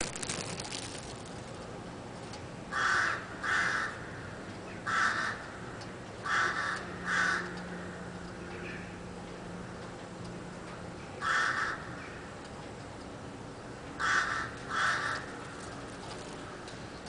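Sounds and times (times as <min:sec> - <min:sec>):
crow cawing: 0:02.7 - 0:05.5, 0:06.2 - 0:07.8, 0:11.2 - 0:12.0, 0:14.0 - 0:15.4.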